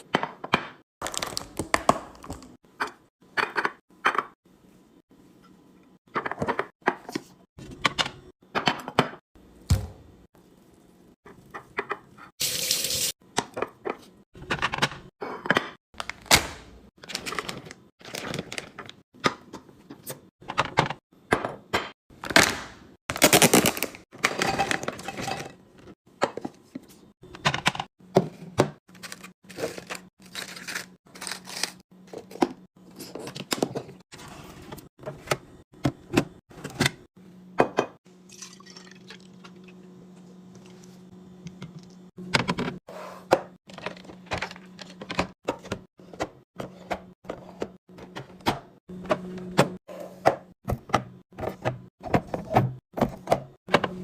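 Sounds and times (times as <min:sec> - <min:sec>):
kitchen dishes clinking and clattering: 0:24.2 - 0:25.6.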